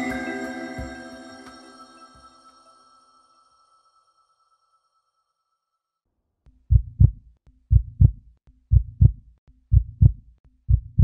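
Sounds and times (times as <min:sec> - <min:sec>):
heartbeat thumps: 0:06.7 - 0:11.0.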